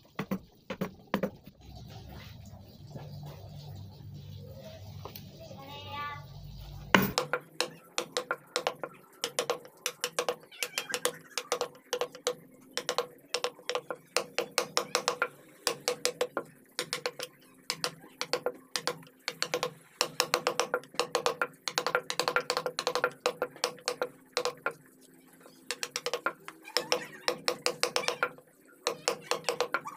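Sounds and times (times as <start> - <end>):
mallet tapping chisel into wood: 7.0 - 10.4, 11.0 - 24.7, 25.7 - 28.3.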